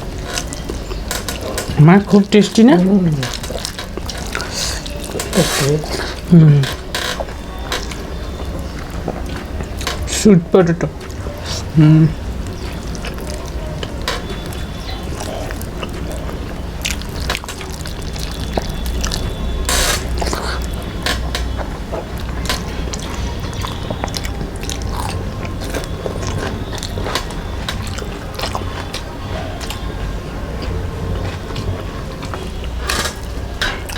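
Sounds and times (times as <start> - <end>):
rustling crackle: 0.0 - 10.1
chewing with wet mouth clicks: 0.0 - 10.2, 10.8 - 33.9.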